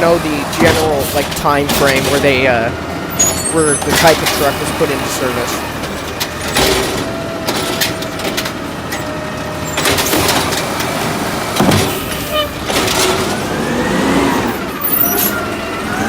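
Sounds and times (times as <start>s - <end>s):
garbage truck engine running: 0.0s - 16.0s
sharp knocks and clatter: 0.5s - 2.4s, 5.8s - 9.1s, 9.8s - 10.9s, 11.5s - 13.4s.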